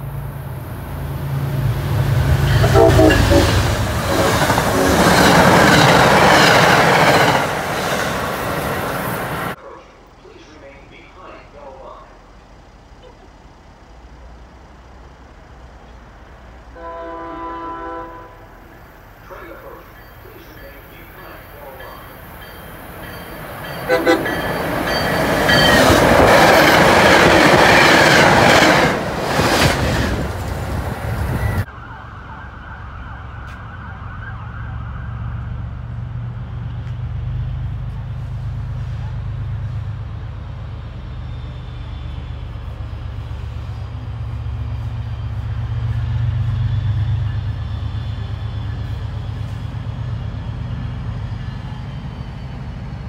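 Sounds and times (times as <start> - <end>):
low rumble of train running: 0.0 - 31.7, 34.9 - 53.0
train passing at speed: 0.0 - 32.3, 34.9 - 53.0
train horn: 2.2 - 5.8, 16.7 - 18.8, 23.9 - 24.6.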